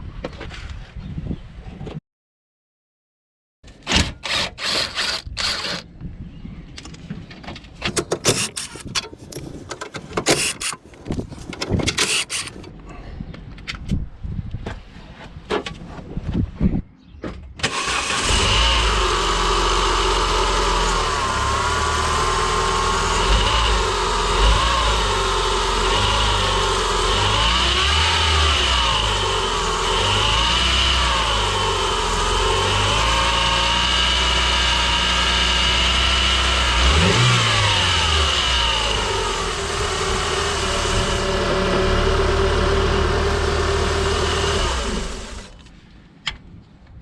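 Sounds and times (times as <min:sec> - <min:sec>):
handling knocks and clicks: 0:06.8 - 0:12.8
car engine starting and idling: 0:07.8 - 0:12.8, 0:17.6 - 0:45.7.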